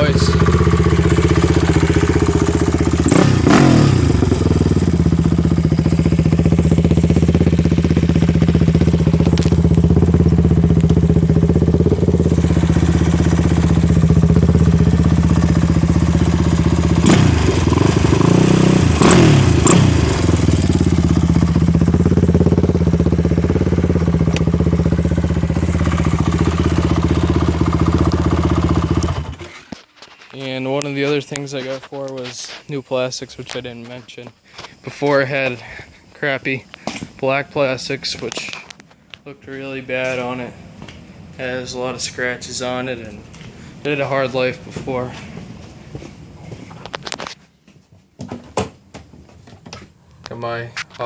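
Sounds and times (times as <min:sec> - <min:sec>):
atv engine idling and revving: 0:00.0 - 0:29.6.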